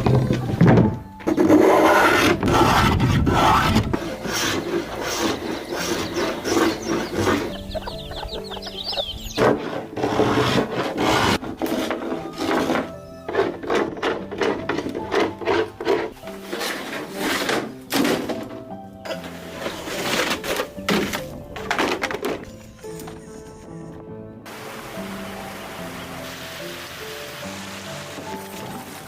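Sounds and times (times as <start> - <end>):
background music with held tones: 0.0 - 29.0
rasping scraping strokes: 1.3 - 18.3, 19.1 - 21.2.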